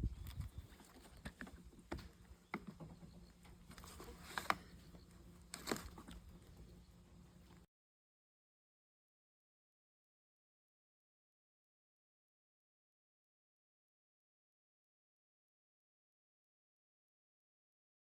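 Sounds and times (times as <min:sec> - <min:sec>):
faint steady hum: 0:00.0 - 0:07.7.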